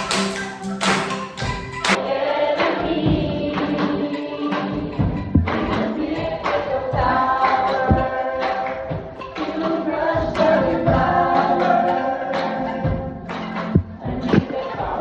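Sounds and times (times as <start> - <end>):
choir singing: 0.0 - 15.0
low beats: 0.0 - 15.0.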